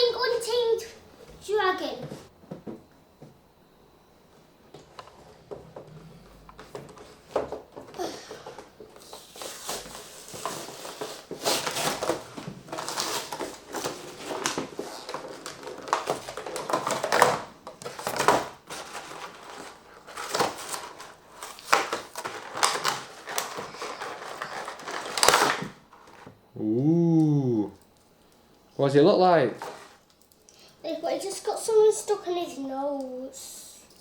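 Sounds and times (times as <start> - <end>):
packaging crinkling and clicking: 9.0 - 26.2.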